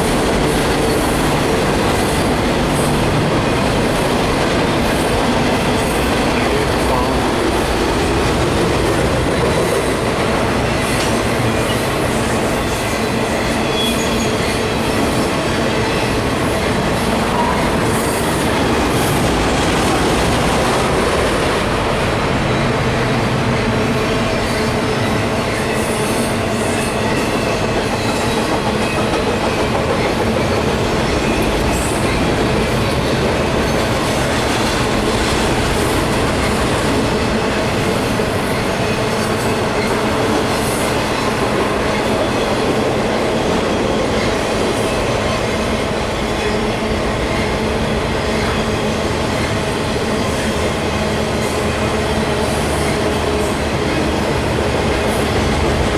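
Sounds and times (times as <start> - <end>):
freight train cars rolling past: 0.0 - 55.9.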